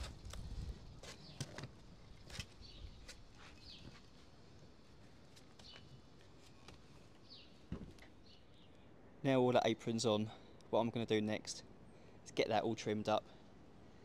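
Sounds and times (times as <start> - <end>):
small birds chirping: 0.2 - 4.3, 5.4 - 8.9.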